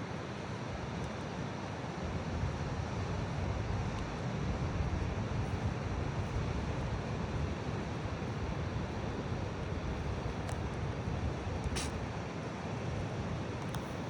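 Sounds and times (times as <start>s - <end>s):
sharp click: 11.8s - 12.0s.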